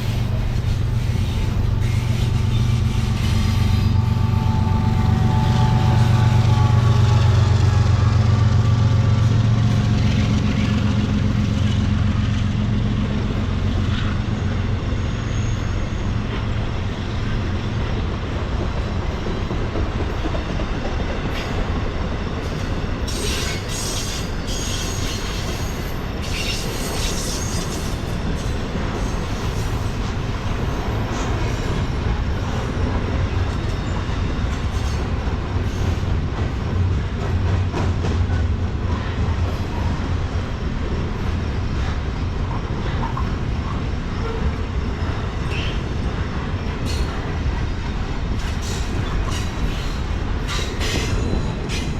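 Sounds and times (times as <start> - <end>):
locomotive engine drone: 0.0 - 23.1
train wheels clacking on rails: 0.0 - 51.9
wheel squeals: 14.2 - 16.3.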